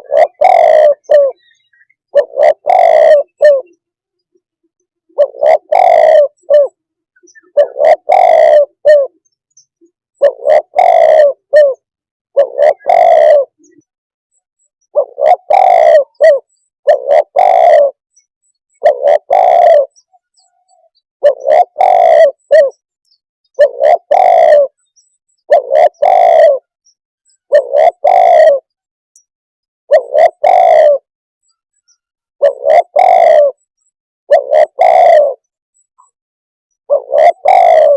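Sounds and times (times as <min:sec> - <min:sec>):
dove cooing: 0:00.0 - 0:03.8, 0:05.1 - 0:09.3, 0:10.1 - 0:13.9, 0:14.9 - 0:18.0, 0:18.7 - 0:22.8, 0:23.6 - 0:24.8, 0:25.4 - 0:26.8, 0:27.4 - 0:28.8, 0:29.9 - 0:31.1, 0:32.4 - 0:33.7, 0:34.3 - 0:36.2, 0:36.8 - 0:37.9.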